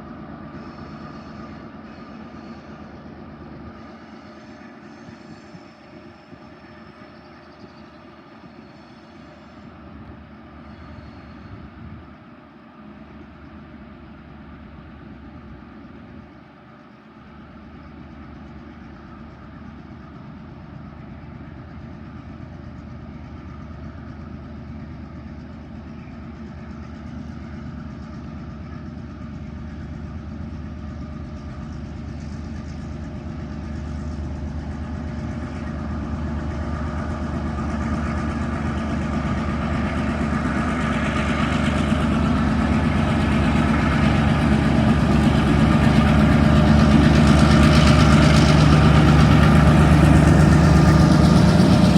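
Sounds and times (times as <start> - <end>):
diesel locomotive engine drone: 0.0 - 51.9.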